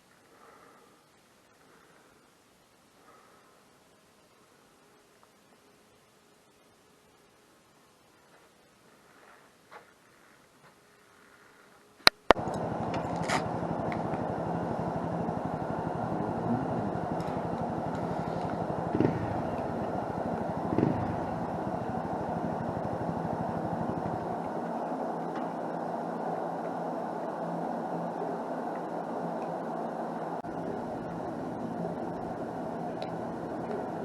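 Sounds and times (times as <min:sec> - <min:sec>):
motorcycle engine idling: 0:12.3 - 0:34.0.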